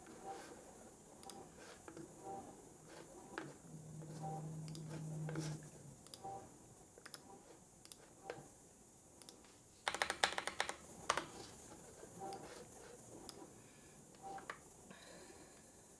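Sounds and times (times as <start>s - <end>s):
typing on computer keyboard: 9.8s - 11.4s.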